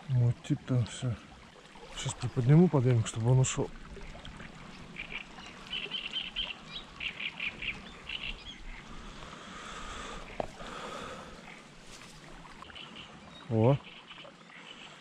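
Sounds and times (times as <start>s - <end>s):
bird chirping: 4.6s - 8.8s.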